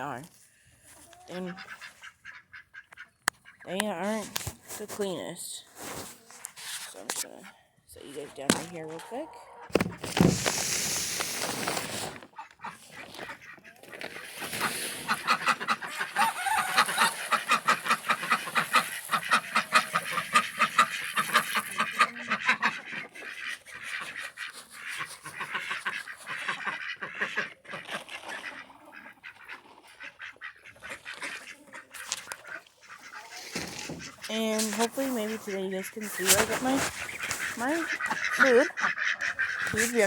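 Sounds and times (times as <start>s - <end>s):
ducks quacking: 1.3s - 4.2s, 12.3s - 40.0s.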